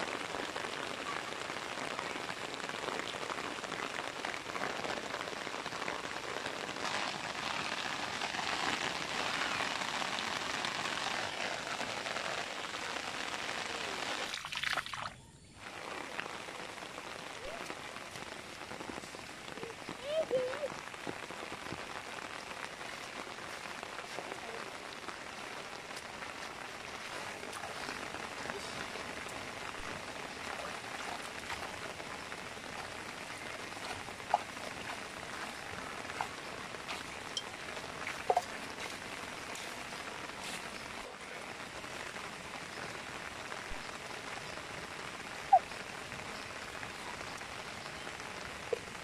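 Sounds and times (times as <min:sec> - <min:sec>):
rain on grass and puddles: 0:00.0 - 0:49.0.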